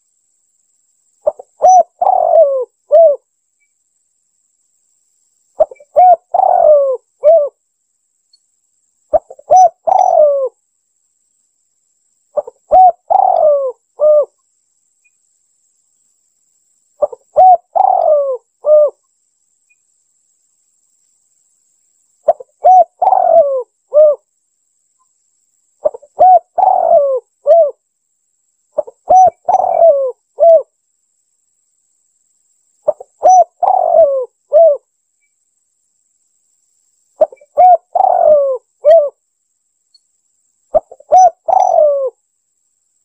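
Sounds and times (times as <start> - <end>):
dove cooing: 1.2 - 3.2, 5.6 - 7.6, 9.1 - 10.6, 12.4 - 14.4, 17.0 - 19.0, 22.3 - 24.2, 25.8 - 27.8, 28.8 - 30.7, 32.8 - 34.8, 37.2 - 39.2, 40.7 - 42.2.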